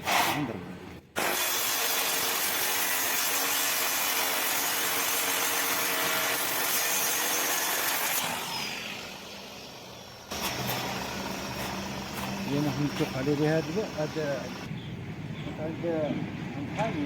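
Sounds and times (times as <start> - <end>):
angle grinder grinding steel: 1.2 - 14.7.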